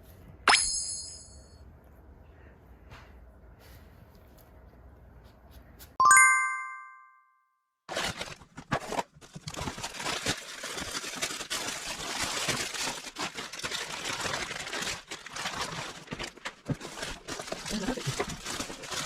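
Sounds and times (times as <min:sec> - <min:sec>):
bell-like chime: 0:00.5 - 0:01.5, 0:06.0 - 0:07.4
plastic packaging crinkling: 0:07.9 - 0:19.0.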